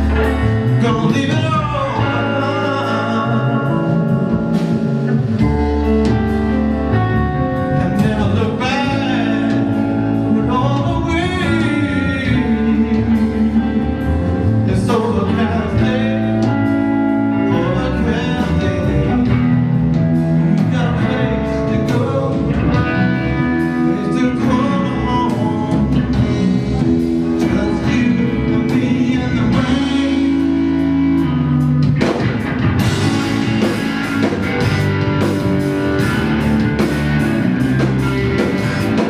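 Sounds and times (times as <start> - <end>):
person singing: 0.0 - 6.3, 6.9 - 31.4
bass guitar: 0.0 - 39.0
drums: 0.0 - 39.0
electric guitar: 0.0 - 39.0.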